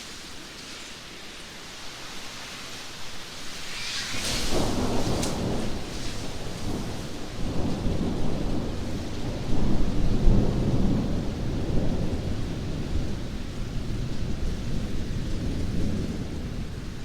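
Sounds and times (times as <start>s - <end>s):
heavy rain: 0.0s - 17.0s
rolling thunder: 3.6s - 17.0s.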